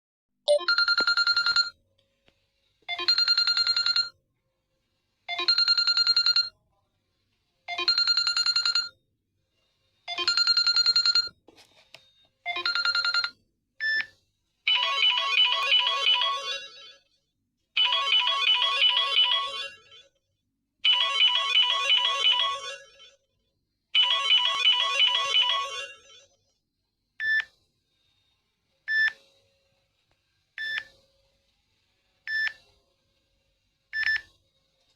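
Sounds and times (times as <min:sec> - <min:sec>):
phone alarm melody: 0:24.0 - 0:26.0.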